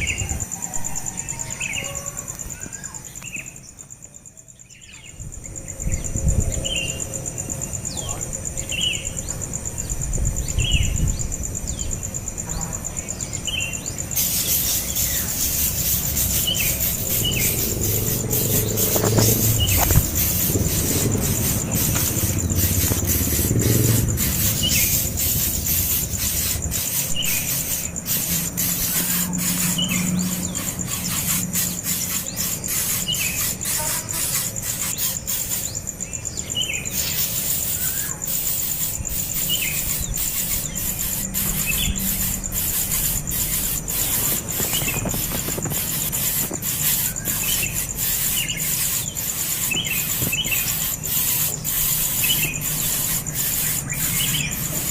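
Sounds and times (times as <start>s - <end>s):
steady high hiss: 0.0s - 54.9s.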